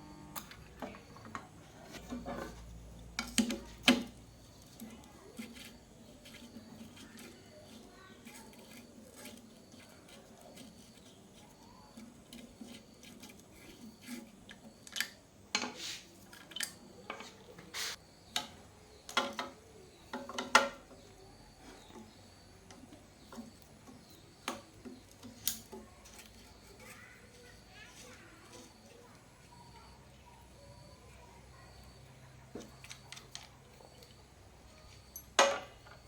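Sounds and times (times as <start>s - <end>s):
tools clinking and knocking: 18.3s - 21.0s, 34.8s - 36.0s.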